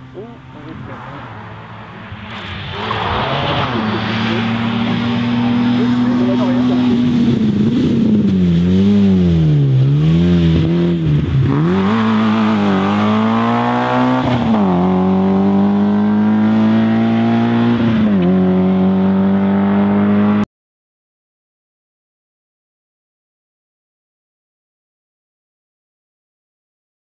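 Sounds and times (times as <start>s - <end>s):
rally car engine revving: 0.0s - 20.4s.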